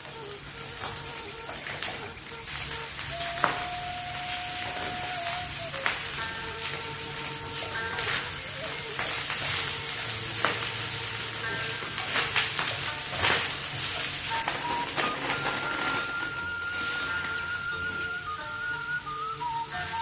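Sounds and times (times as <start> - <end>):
rice sizzling in a wok: 0.0 - 20.0
wooden spatula scraping wok: 0.0 - 20.0.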